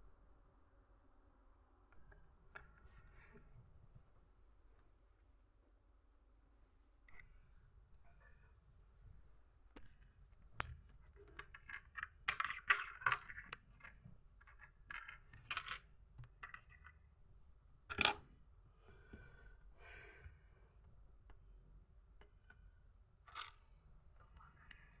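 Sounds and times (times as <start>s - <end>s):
plastic pieces clicking and rattling: 11.0s - 17.0s.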